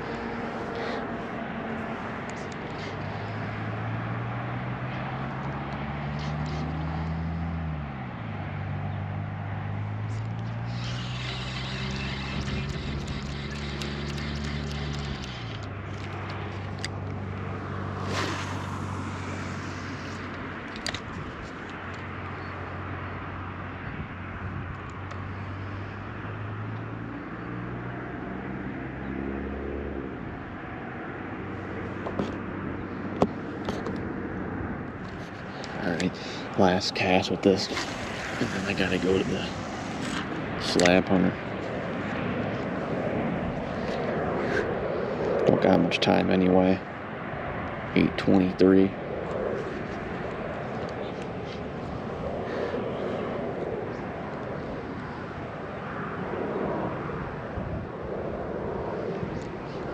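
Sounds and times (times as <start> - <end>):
outdoor background noise: 0.0 - 59.9
vehicle engine humming: 0.0 - 59.9
broad background noise: 35.0 - 45.4.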